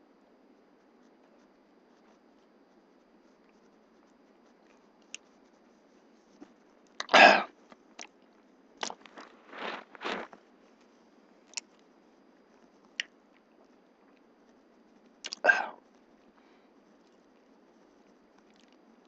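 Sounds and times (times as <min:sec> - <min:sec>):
mouth clicks: 0:07.0 - 0:08.1, 0:15.2 - 0:15.8.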